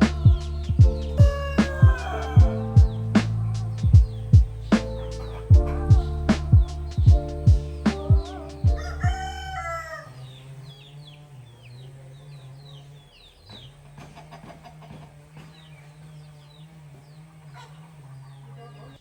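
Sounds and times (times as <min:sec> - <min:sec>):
background music with a beat: 0:00.0 - 0:09.2
low steady hum: 0:00.0 - 0:18.6
chicks peeping: 0:00.0 - 0:19.0.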